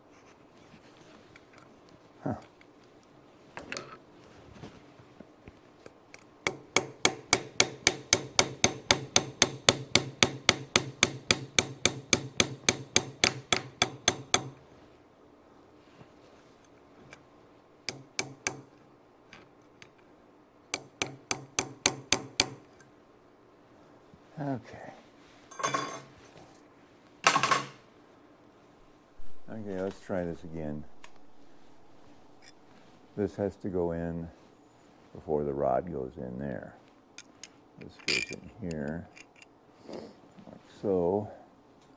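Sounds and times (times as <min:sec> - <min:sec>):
hammer tapping on metal: 0:06.4 - 0:14.6, 0:17.9 - 0:18.7, 0:20.7 - 0:22.7.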